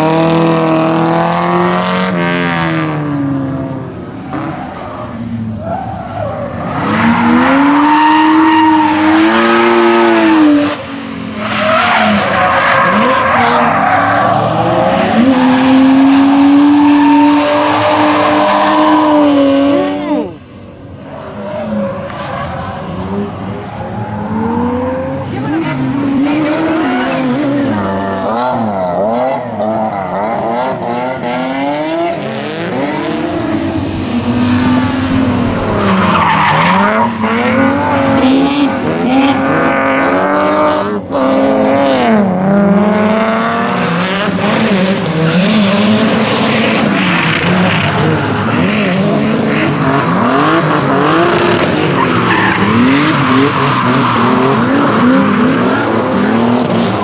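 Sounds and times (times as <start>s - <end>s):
rally car engine revving: 0.0s - 57.0s
tyres squealing and skidding: 4.2s - 20.4s, 21.0s - 30.1s, 32.6s - 40.8s, 45.1s - 57.0s.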